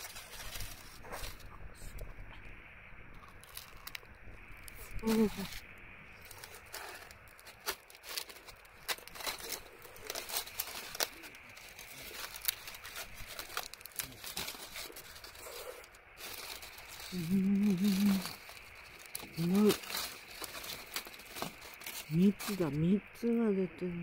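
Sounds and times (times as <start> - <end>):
sweet potato skin crinkling and tearing: 0.0 - 2.0, 3.1 - 22.9
person humming: 4.9 - 5.5, 17.1 - 18.4.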